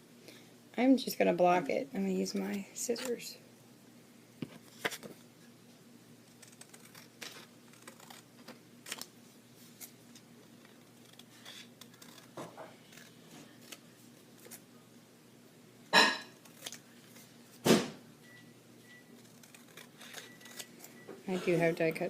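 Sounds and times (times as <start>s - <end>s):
scissors snipping paper: 6.3s - 9.1s, 10.6s - 14.6s, 16.4s - 17.3s, 19.2s - 20.9s.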